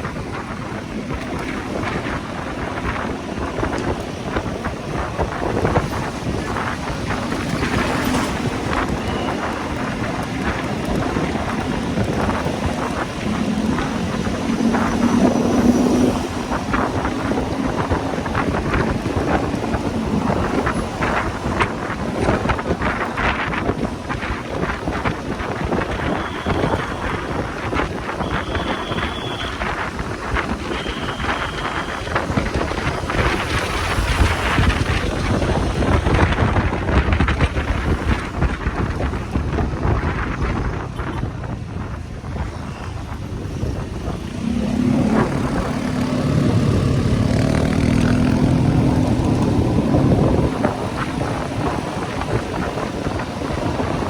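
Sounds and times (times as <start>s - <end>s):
motorcycle engine hum: 0.0s - 54.0s
wind buffeting microphone: 0.0s - 54.0s
low motorcycle rumble: 43.3s - 54.0s.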